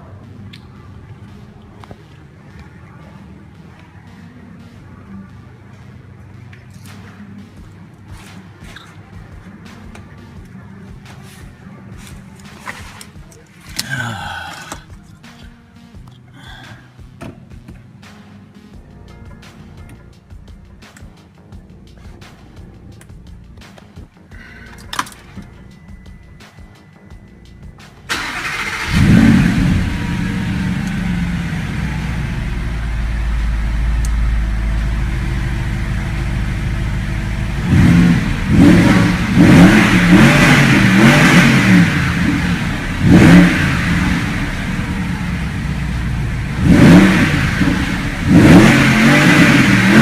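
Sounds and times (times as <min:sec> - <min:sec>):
car engine starting and idling: 0:28.1 - 0:50.0
engine revving blips: 0:28.1 - 0:50.0.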